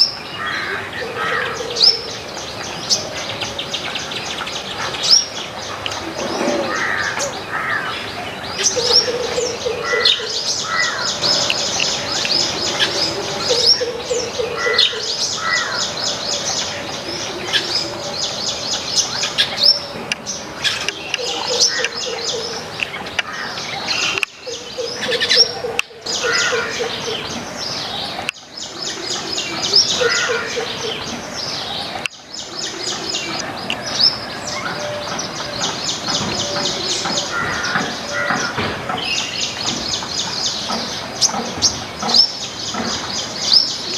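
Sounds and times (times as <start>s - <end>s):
birds chirping: 0.0s - 43.9s.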